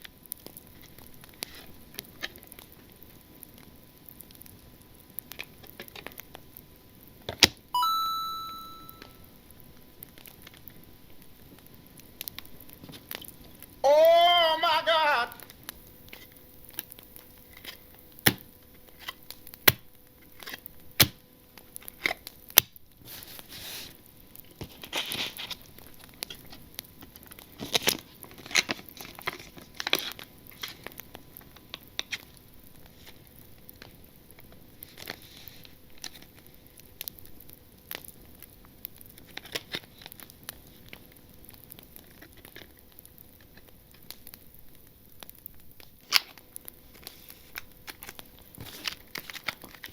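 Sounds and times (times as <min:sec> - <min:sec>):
wrapper crinkling and tearing: 0:47.0 - 0:49.9.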